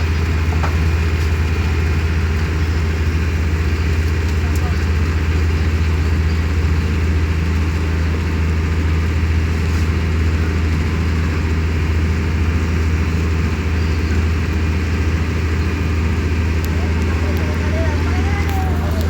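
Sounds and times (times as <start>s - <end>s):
boat diesel engine droning: 0.0s - 19.0s.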